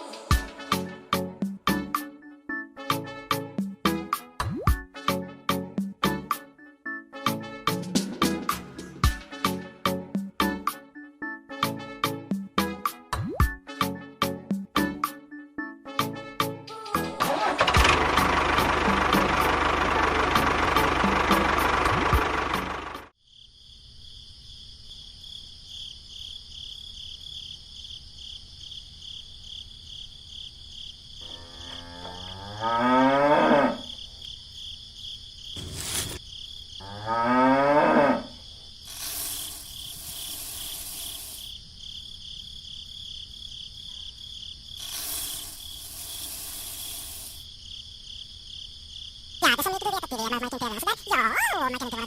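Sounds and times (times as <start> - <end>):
crickets chirping: 23.2 - 52.0
cow mooing: 31.2 - 33.9, 36.8 - 38.4.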